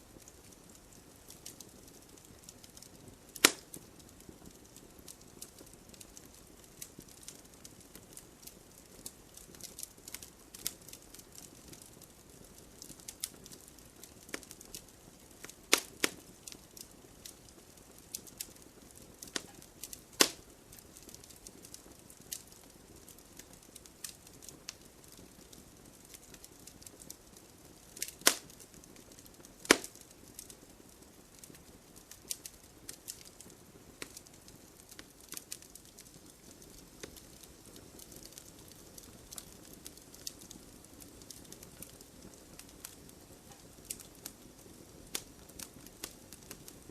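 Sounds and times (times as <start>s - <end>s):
wood fire crackling: 0.0s - 46.9s
loud sharp wood snaps: 3.4s - 3.7s, 15.7s - 16.2s, 20.2s - 20.4s, 28.0s - 28.5s, 29.6s - 30.0s.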